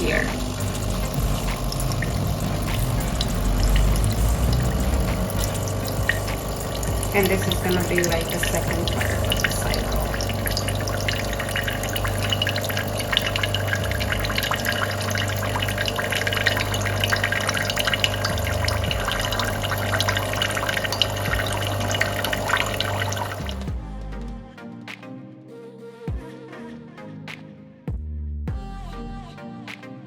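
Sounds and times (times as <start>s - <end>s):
pump humming: 0.0s - 23.7s
water splashing: 0.0s - 23.7s
soft music: 0.0s - 30.0s.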